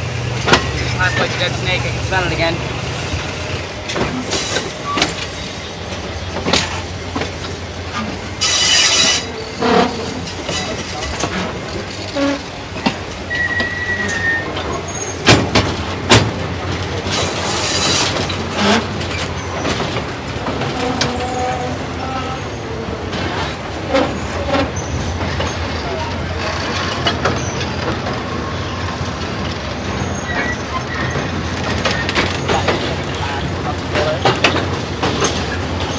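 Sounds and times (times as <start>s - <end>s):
train rumbling over trestle: 0.0s - 35.9s
wheels and couplings clanking: 0.0s - 35.9s
high wheel squeals: 0.7s - 1.6s, 8.0s - 11.4s, 12.1s - 15.3s, 23.9s - 28.9s, 29.8s - 33.4s.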